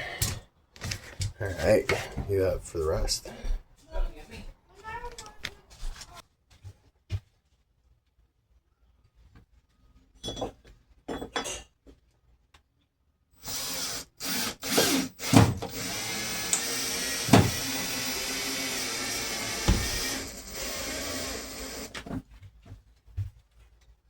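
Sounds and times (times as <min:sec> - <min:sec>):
power drill running: 0:13.4 - 0:22.1
sharp knocks: 0:19.5 - 0:20.2.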